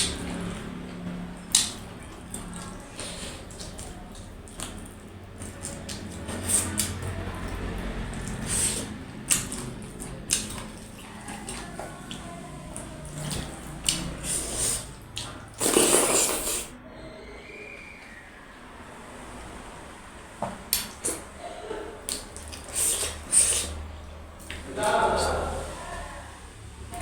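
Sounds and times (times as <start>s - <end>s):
wet chewing and lip smacks: 1.5s - 16.7s, 20.7s - 21.3s, 22.1s - 24.6s.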